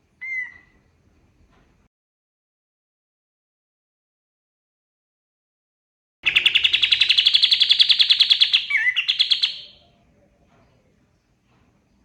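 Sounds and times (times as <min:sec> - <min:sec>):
bird singing fast trill: 0:06.2 - 0:09.8.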